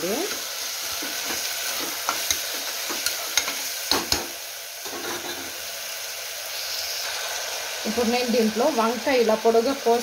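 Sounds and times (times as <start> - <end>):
vegetables sizzling in hot oil: 0.0 - 10.0
utensil scraping metal pot: 0.3 - 4.2.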